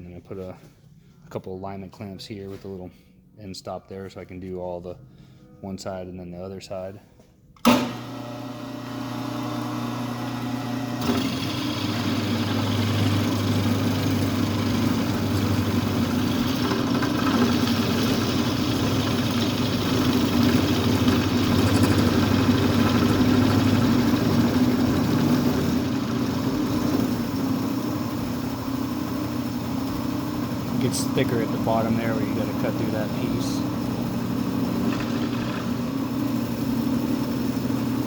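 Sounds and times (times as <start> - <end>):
milling machine humming: 7.8 - 38.0.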